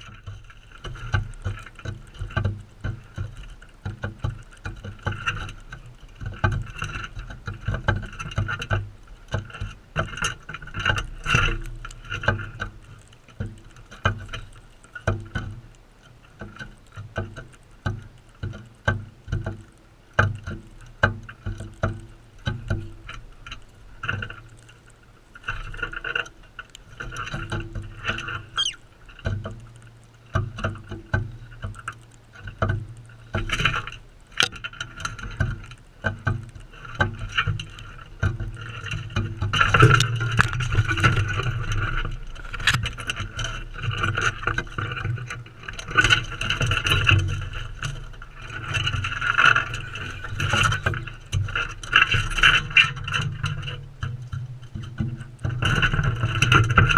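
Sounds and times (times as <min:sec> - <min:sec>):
birds chattering softly: 0:28.6 - 0:28.8
bird rising call: 0:28.6 - 0:28.9.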